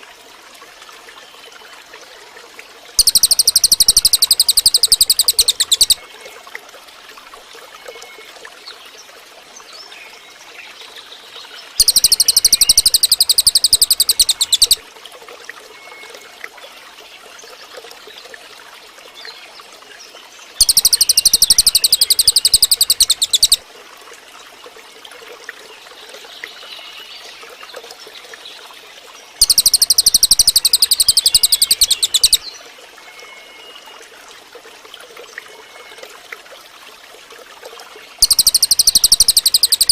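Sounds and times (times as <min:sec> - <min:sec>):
low steady hiss: 0:00.0 - 0:39.9
songbird high-pitched trills: 0:03.0 - 0:06.0, 0:11.8 - 0:14.8, 0:20.6 - 0:23.6, 0:29.4 - 0:32.5, 0:38.2 - 0:39.9
faint bird chirps: 0:03.0 - 0:06.1, 0:11.8 - 0:14.8, 0:20.6 - 0:23.6, 0:29.4 - 0:32.5, 0:38.2 - 0:39.9.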